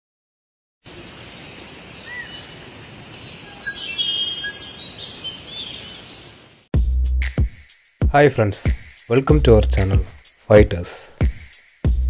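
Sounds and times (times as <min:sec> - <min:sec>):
steady outdoor hiss: 0:00.8 - 0:12.0
birds chirping and whistling: 0:01.8 - 0:02.5, 0:03.2 - 0:06.3.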